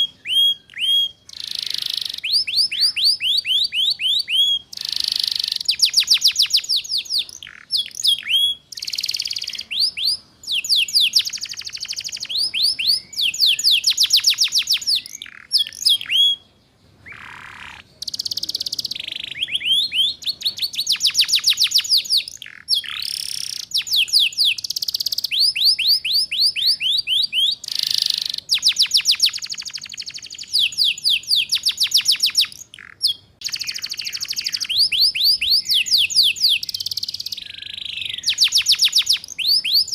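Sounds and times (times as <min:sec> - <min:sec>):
canary singing rattling trills: 0:00.0 - 0:39.9.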